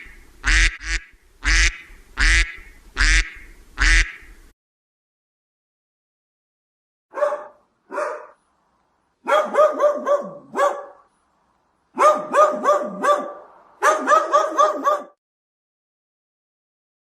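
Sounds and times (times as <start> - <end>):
small dog barking: 7.1 - 8.4, 9.2 - 11.1, 11.9 - 15.2.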